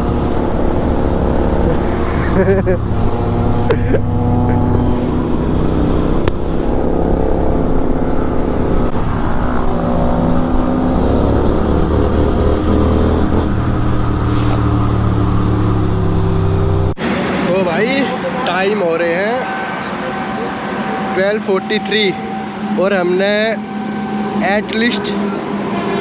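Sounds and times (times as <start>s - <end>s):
motorcycle engine running: 0.0s - 17.0s
constant rush of noise: 0.0s - 26.0s.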